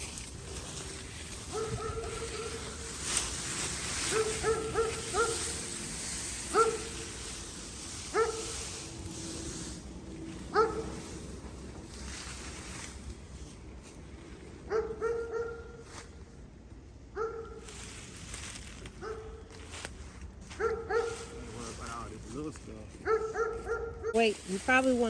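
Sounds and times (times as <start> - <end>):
dog barking: 1.5 - 2.9, 4.0 - 5.6, 6.5 - 7.0, 8.1 - 8.5, 10.5 - 11.0, 14.7 - 15.8, 17.1 - 17.6, 19.0 - 19.4, 20.5 - 21.6, 23.0 - 24.2.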